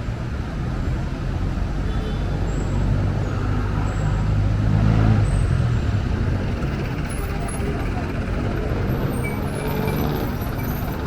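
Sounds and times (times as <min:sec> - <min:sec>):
steady low traffic rumble: 0:00.0 - 0:11.0
large vehicle engine passing: 0:04.6 - 0:11.0.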